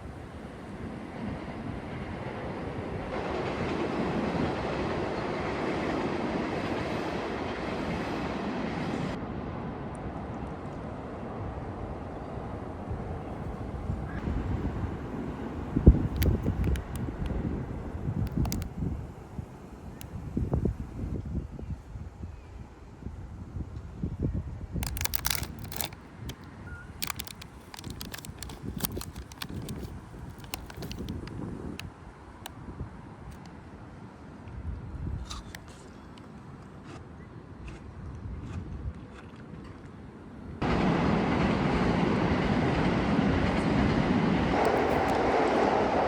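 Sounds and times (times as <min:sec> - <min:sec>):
train rumbling: 0:00.0 - 0:09.6, 0:11.3 - 0:21.3, 0:24.8 - 0:31.9, 0:40.6 - 0:46.0
sharp crackles and clicks: 0:15.8 - 0:17.4, 0:18.2 - 0:18.8, 0:24.8 - 0:31.8, 0:44.6 - 0:45.2.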